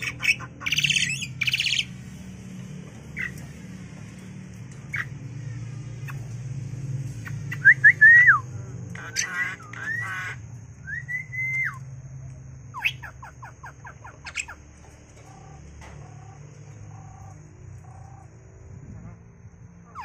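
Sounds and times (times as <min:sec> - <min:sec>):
bird whistling: 0:00.0 - 0:01.9, 0:07.2 - 0:11.8, 0:12.7 - 0:14.6.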